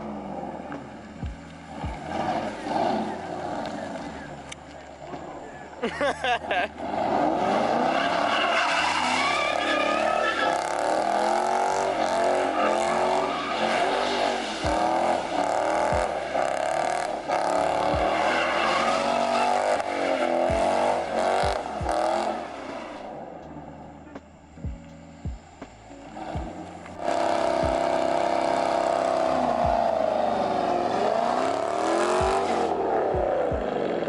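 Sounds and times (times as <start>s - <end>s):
car engine revving: 0.0s - 34.0s
tyres squealing: 7.1s - 24.5s.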